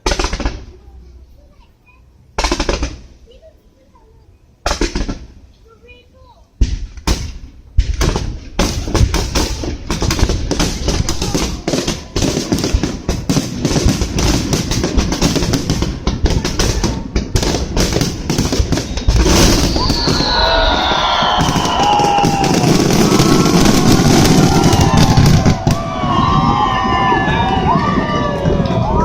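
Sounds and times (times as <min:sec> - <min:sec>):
fireworks banging and crackling: 0:00.0 - 0:01.0, 0:02.4 - 0:03.5, 0:04.6 - 0:05.5, 0:06.6 - 0:29.0
falling whistle: 0:18.7 - 0:27.6.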